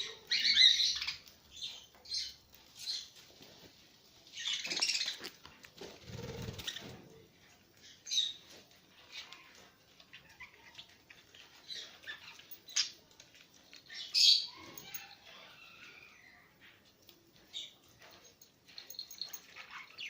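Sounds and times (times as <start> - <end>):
parrots chirping: 0.0 - 3.1, 4.3 - 5.4, 8.0 - 13.0.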